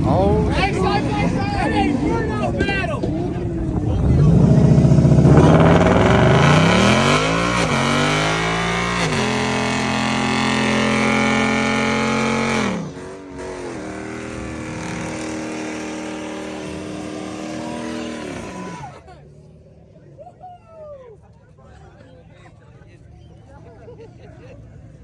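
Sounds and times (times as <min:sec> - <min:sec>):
car engine revving hard: 0:03.6 - 0:19.0.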